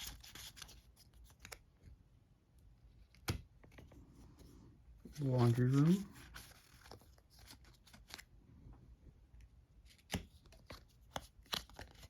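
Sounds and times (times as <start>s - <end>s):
cardboard cards tapping and rustling: 9.9s - 12.0s.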